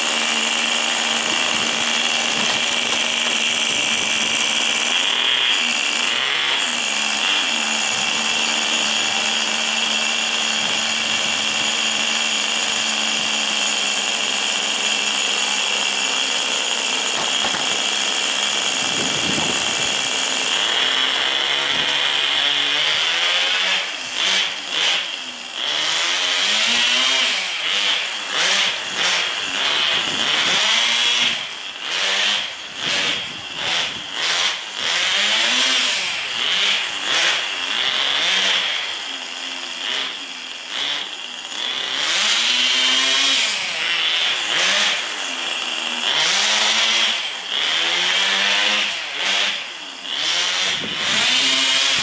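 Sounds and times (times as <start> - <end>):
small nitro engine whining: 0.0 - 52.0.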